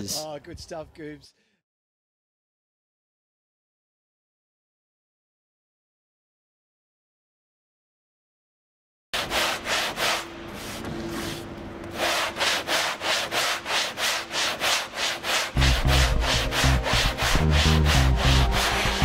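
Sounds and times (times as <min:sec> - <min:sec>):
rhythmic sanding strokes: 0:09.2 - 0:19.0
heavy bass beat: 0:15.6 - 0:19.0.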